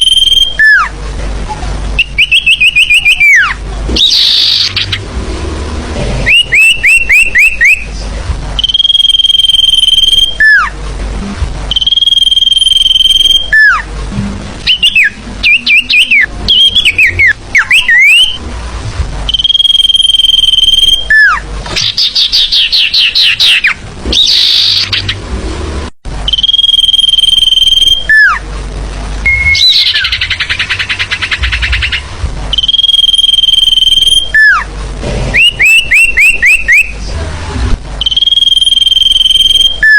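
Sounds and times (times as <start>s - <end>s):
rapid buzzy trills: 0.0s - 39.9s.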